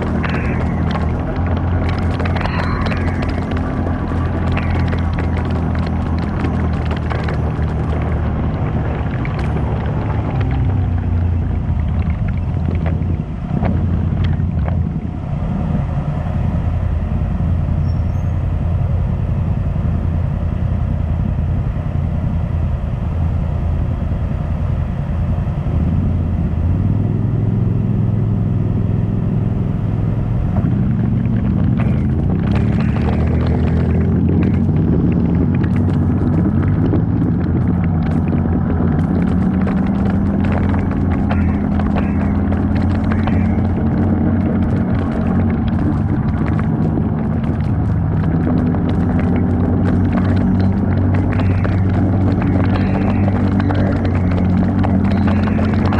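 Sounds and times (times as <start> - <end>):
knocks and rattles: 0.0 - 15.2, 30.5 - 55.9
off-road vehicle engine: 0.0 - 55.9.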